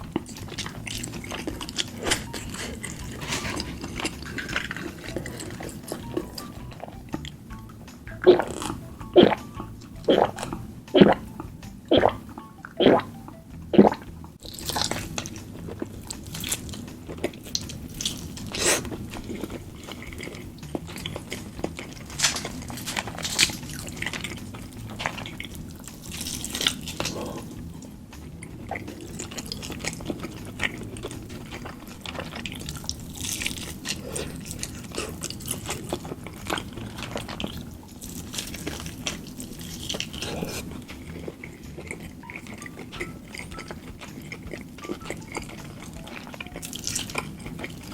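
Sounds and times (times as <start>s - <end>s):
person chewing food: 0.0s - 47.9s
wet crunches and clicks: 13.8s - 47.9s.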